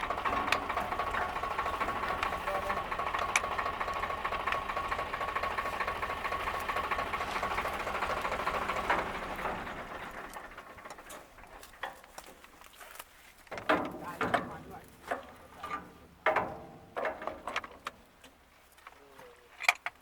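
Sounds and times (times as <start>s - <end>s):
wheat thresher running: 0.0s - 12.2s.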